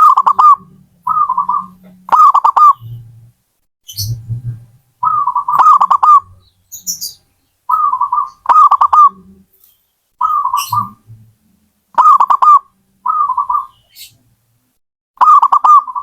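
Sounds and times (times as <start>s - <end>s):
dove cooing: 0.0s - 3.1s, 5.0s - 9.5s, 10.2s - 11.2s, 12.0s - 14.1s, 15.2s - 16.0s.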